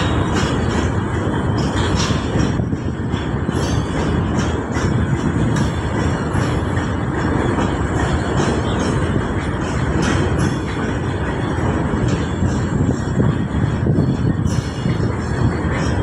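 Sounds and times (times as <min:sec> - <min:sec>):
wheels rumbling on rail: 0:00.0 - 0:16.0.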